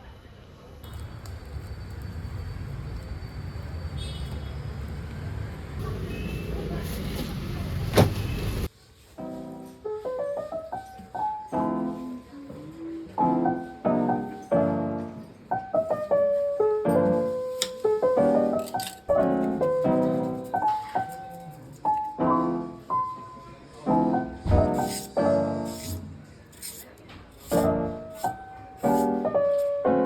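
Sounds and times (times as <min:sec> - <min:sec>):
gentle piano music: 0:09.1 - 0:26.4, 0:27.4 - 0:30.0.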